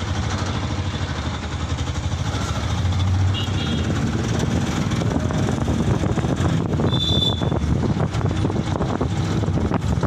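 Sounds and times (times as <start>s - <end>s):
truck engine and road noise: 0.0s - 10.0s
wind buffeting microphone: 3.8s - 10.0s.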